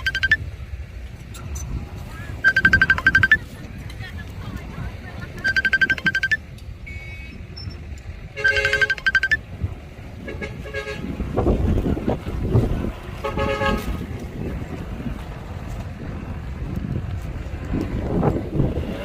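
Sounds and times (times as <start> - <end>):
heavy engine rumble: 0.0 - 19.0
vehicle horn stuttering pulses: 5.4 - 9.4, 10.2 - 11.6, 13.2 - 14.0.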